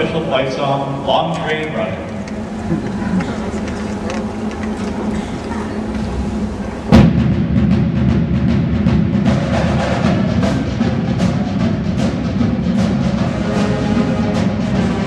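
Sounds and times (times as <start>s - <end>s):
drum line beat: 6.9s - 15.0s
brass playing: 9.3s - 15.0s.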